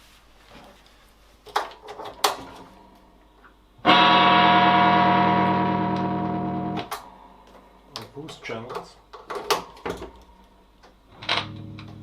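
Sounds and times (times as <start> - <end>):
electric guitar strummed chord: 3.8 - 7.2
amplifier crackling pops: 5.3 - 7.1.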